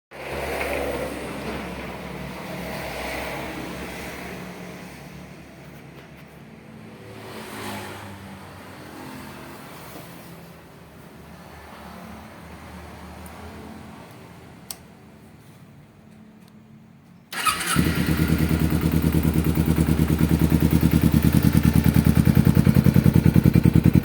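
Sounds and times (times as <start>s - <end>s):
motorcycle engine running: 17.4s - 24.0s.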